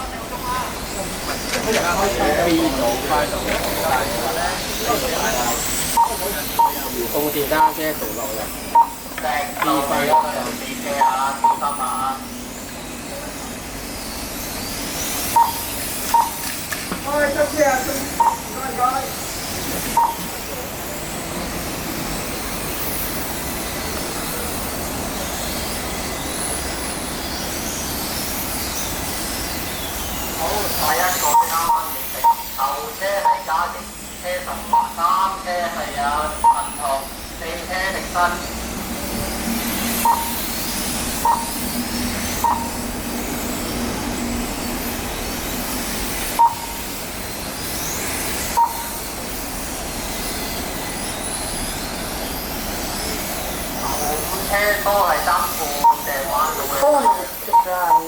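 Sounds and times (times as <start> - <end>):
rushing background noise: 0.0 - 58.0
short electronic beeps: 5.8 - 12.2, 15.2 - 16.5, 18.0 - 18.6, 19.9 - 20.4, 30.8 - 33.6, 34.6 - 35.4, 36.2 - 37.1, 39.9 - 42.9, 46.3 - 46.8, 48.4 - 49.1, 53.8 - 58.0.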